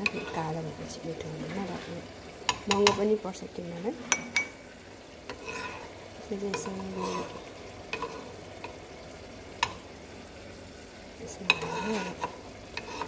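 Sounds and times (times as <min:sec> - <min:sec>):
nuts sizzling in hot oil: 0:00.0 - 0:13.0
metal spoon clinking against pan: 0:02.5 - 0:03.0, 0:04.1 - 0:04.6, 0:06.5 - 0:07.3, 0:11.5 - 0:13.0.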